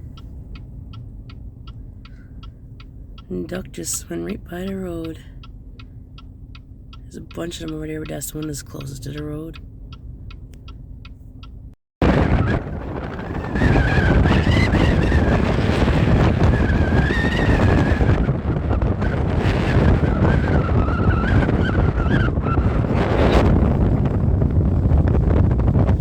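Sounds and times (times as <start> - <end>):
wavering wind whistle: 12.0 - 26.0
wind buffeting microphone: 12.0 - 26.0.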